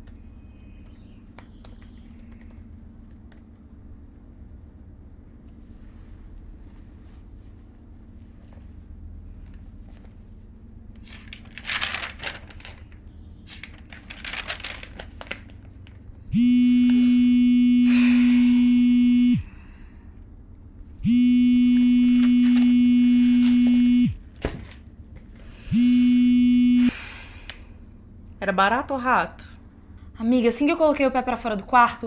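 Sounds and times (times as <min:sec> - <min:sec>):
rustling: 0:11.0 - 0:16.0
phone ringing: 0:16.4 - 0:19.5, 0:21.0 - 0:24.2, 0:25.7 - 0:26.9.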